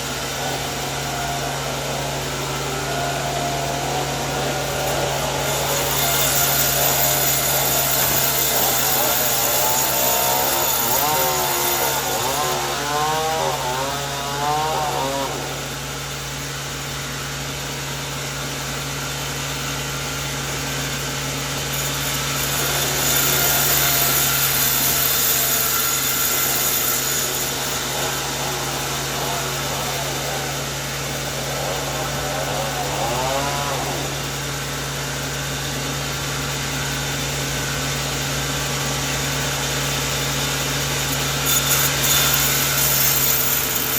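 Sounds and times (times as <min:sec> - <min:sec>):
voices: 0:00.0 - 0:16.3, 0:22.1 - 0:35.9
motor hum: 0:00.0 - 0:43.9
saw cutting through wood: 0:00.0 - 0:43.9.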